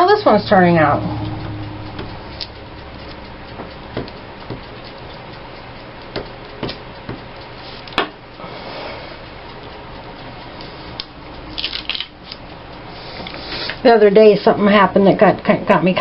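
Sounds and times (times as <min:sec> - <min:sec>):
taps and clicks on tabletop: 0:03.6 - 0:04.6.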